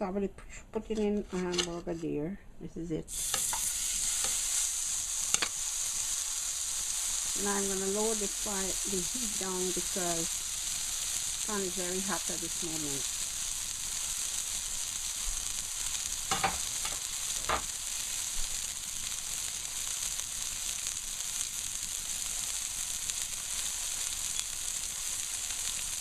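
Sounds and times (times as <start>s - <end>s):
burger patties sizzling in a pan: 3.1s - 26.0s.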